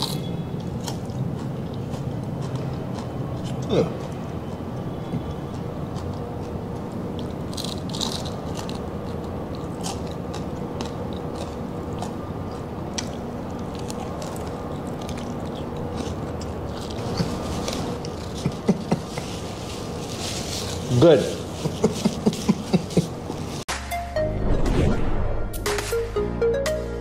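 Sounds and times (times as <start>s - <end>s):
steady background hum: 0.0s - 24.4s
crunching of fried pork skin: 5.2s - 23.0s.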